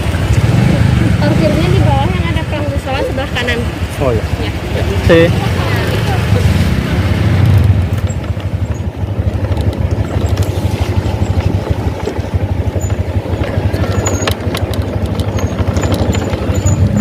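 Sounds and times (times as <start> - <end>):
motorcycle engine rumbling: 0.0 - 17.0
sharp clicks: 13.7 - 16.9.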